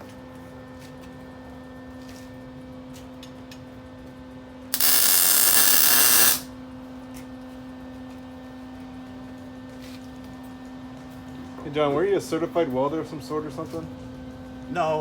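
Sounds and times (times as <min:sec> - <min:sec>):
welding machine burst: 0:04.8 - 0:06.5
electrical hum: 0:04.8 - 0:06.8.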